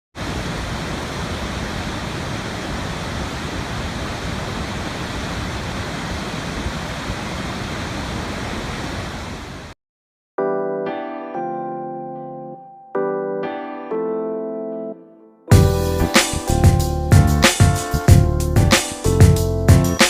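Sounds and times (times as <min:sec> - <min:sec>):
rushing water: 0:00.2 - 0:09.8.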